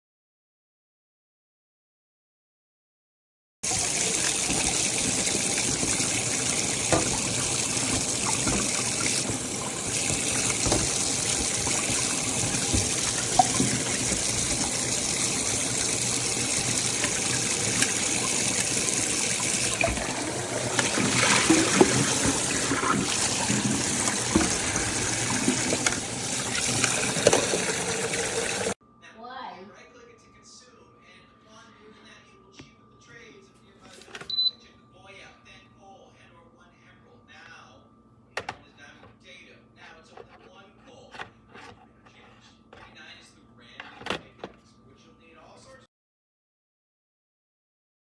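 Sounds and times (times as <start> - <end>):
electric kettle hissing: 3.7 - 28.8
water popping and bubbling: 3.8 - 28.7.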